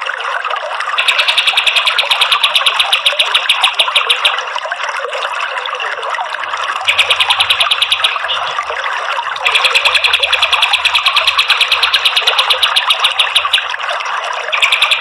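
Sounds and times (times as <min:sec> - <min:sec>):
running water: 0:00.0 - 0:15.0
bird rapid trill: 0:01.0 - 0:04.4, 0:06.8 - 0:08.7, 0:09.5 - 0:13.7, 0:14.5 - 0:15.0.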